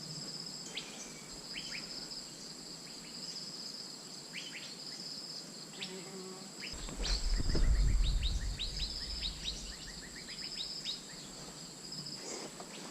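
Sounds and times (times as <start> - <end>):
high insect drone: 0.0 - 12.9
low rumble: 6.8 - 10.3.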